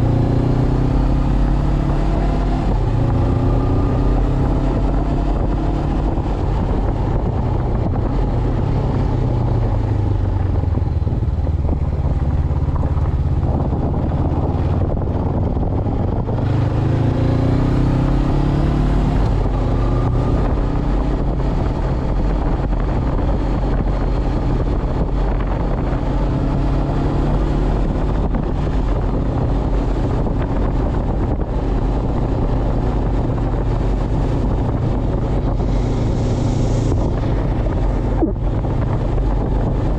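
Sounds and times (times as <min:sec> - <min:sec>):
motorcycle engine revving: 0:00.0 - 0:39.9
wind rushing over microphone: 0:00.0 - 0:39.9.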